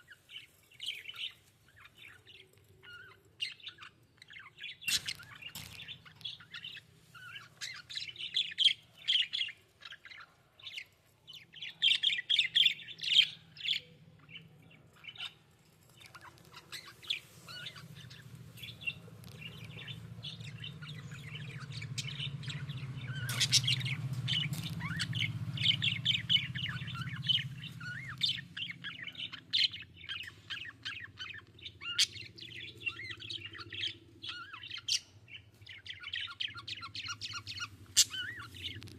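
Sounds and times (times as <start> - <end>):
budgerigars chirping: 0.3 - 10.9, 16.0 - 38.9
low hum: 15.7 - 34.5.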